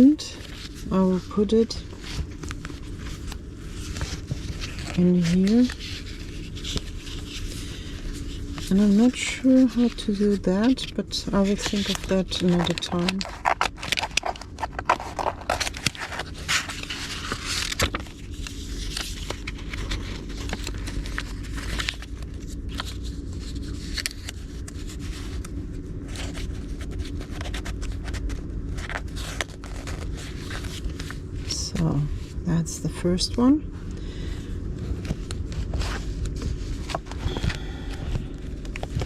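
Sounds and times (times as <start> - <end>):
steady low hum: 0.0 - 39.0
cards rustling and tapping: 1.9 - 31.9, 34.9 - 39.0.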